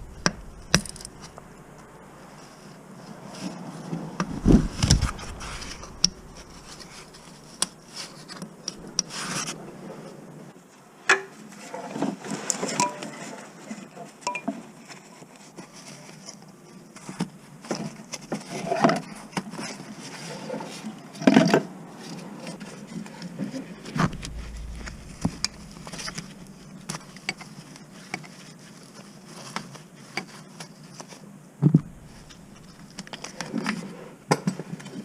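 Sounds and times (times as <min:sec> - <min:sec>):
heavy low thump: 0:00.0 - 0:02.4, 0:04.2 - 0:09.6, 0:24.0 - 0:27.4, 0:31.7 - 0:33.1.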